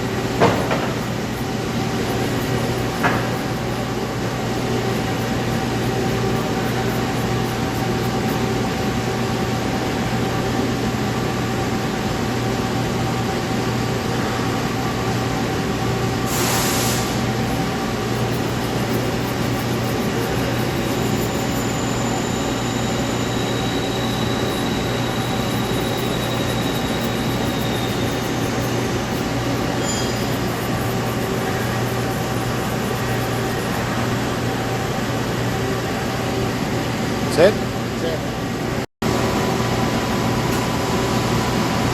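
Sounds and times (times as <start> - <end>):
machinery hum and whine: 0.0 - 41.9
brief hiss: 16.3 - 17.2.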